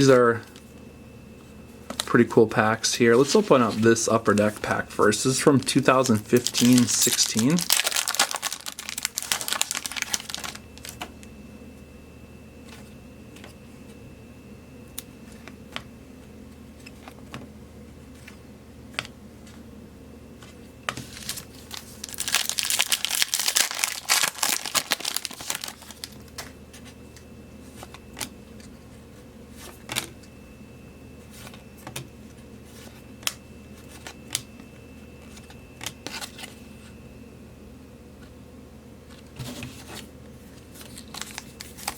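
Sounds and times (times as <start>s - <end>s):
foil wrappers crinkling: 1.9s - 11.1s, 20.9s - 26.5s, 40.6s - 41.9s.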